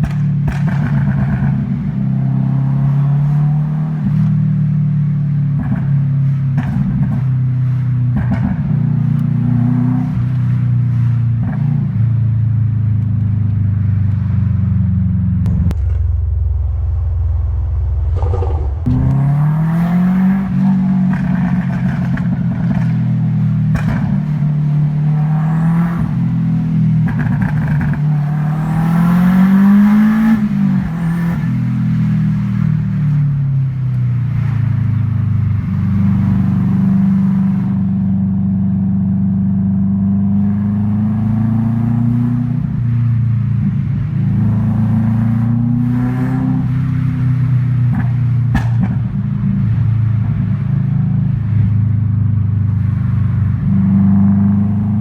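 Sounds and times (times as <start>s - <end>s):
exhaust cracks: 0.0s - 1.8s, 15.3s - 24.8s, 47.9s - 49.2s
car engine accelerating through gears: 0.5s - 51.7s, 52.6s - 55.0s.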